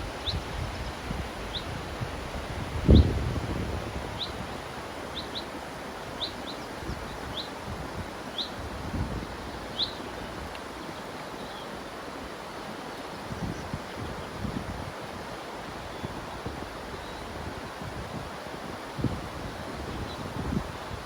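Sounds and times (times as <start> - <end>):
river water rushing: 3.5 - 21.0
bird chirping: 9.7 - 10.1.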